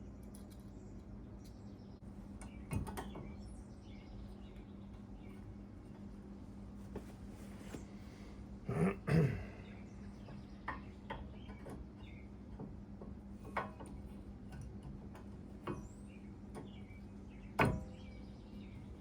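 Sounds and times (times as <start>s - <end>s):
steady low hum: 0.0s - 19.0s
light clicks and taps on metal parts: 10.2s - 16.8s.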